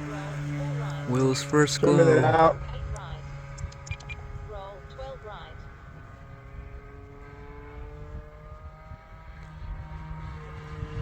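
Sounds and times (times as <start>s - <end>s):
model plane engine running: 0.0s - 11.0s
wind rumble on microphone: 0.0s - 11.0s.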